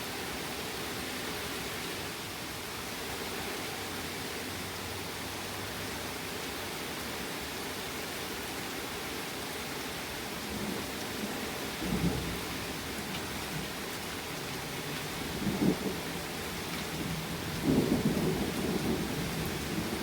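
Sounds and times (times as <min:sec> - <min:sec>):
rain hissing: 0:10.3 - 0:20.0
thunder rumbling: 0:14.4 - 0:20.0.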